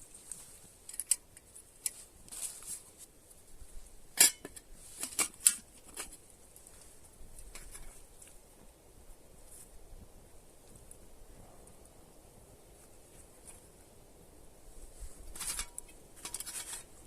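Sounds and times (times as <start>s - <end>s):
clicks and clinks of hard objects: 0.9s - 2.0s, 4.1s - 6.2s, 15.3s - 17.0s.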